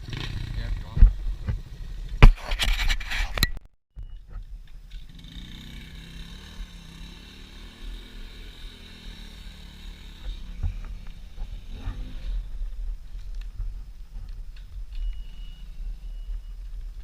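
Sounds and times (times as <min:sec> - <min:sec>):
small motorcycle engine running: 0:04.9 - 0:13.0.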